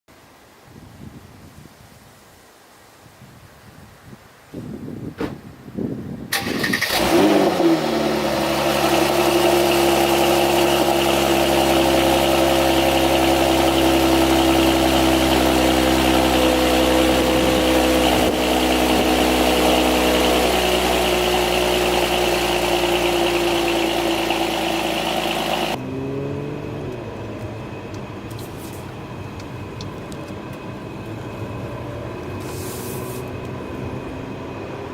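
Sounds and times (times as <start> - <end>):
car engine starting and idling: 6.3 - 34.9.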